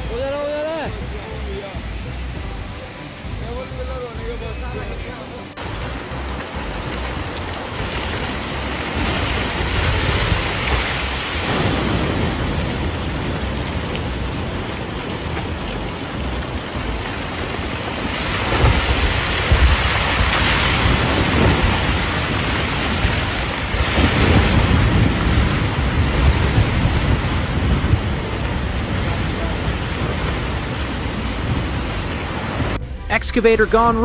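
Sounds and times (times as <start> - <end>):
rushing floodwater rumble: 0.9 - 34.0.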